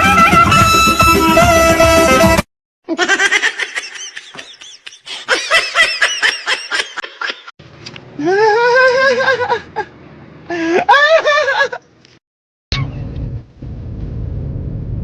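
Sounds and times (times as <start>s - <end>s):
person laughing: 2.9s - 7.5s, 8.2s - 9.9s, 10.5s - 11.8s.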